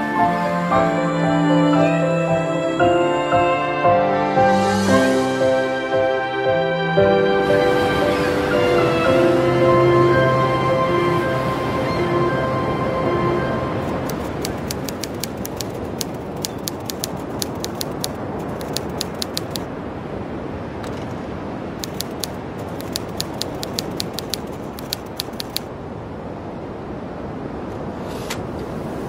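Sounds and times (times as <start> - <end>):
typewriter keys clacking: 13.8 - 19.6, 21.8 - 25.7.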